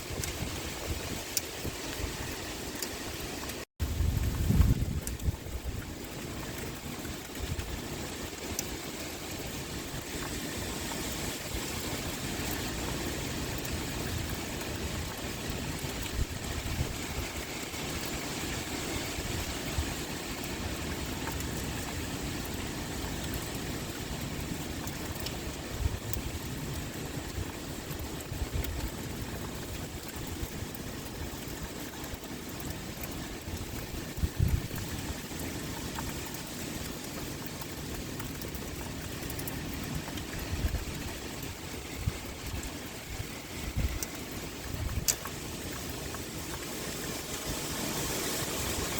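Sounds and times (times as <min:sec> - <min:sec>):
heavy rain pouring: 0:00.0 - 0:48.9
wind rumbling low: 0:03.8 - 0:06.1, 0:39.5 - 0:45.6.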